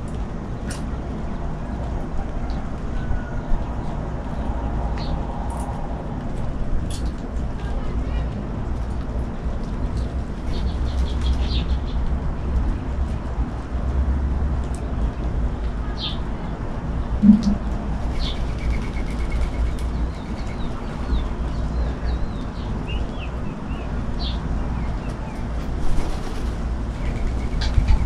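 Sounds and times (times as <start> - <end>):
twittering bird song: 15.9 - 16.3, 17.2 - 26.3
low rumble: 17.0 - 18.7.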